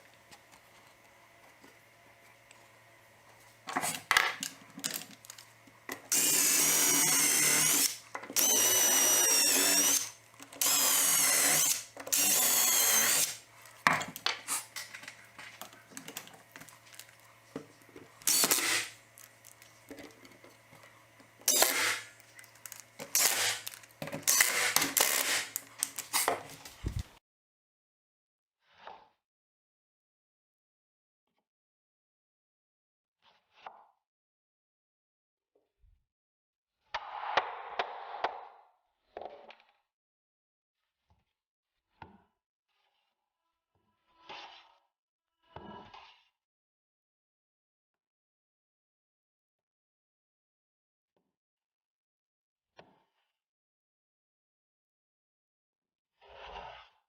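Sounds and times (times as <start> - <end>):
power drill running: 4.9 - 13.7, 18.1 - 20.0, 20.7 - 26.2.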